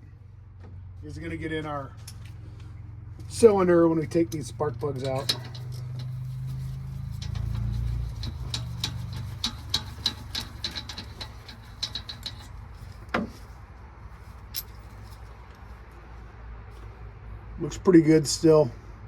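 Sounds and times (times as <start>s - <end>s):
low hum: 2.5s - 15.3s.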